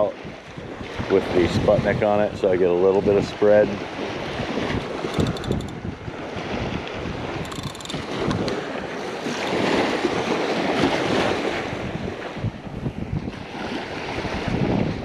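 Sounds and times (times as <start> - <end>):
wind buffeting microphone: 0.0 - 15.0
faint ticks: 5.1 - 5.8, 7.5 - 8.6.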